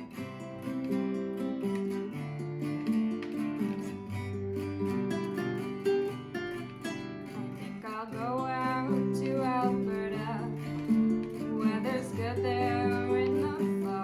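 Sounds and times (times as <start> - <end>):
strummed acoustic guitar: 0.0 - 14.0
person singing: 7.8 - 14.0.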